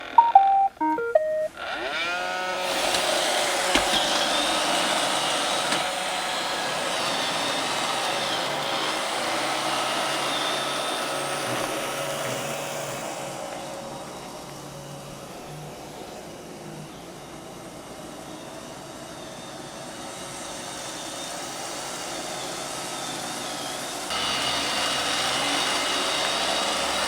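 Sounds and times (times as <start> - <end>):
electronic start-up beeps: 0.0 - 1.5
robot vacuum whirring: 1.6 - 27.0.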